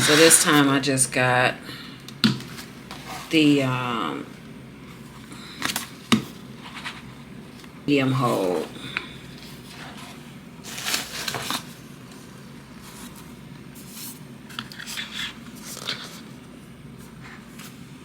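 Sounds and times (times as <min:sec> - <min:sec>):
packaging rustling and scraping: 0:00.0 - 0:00.8, 0:05.5 - 0:17.8.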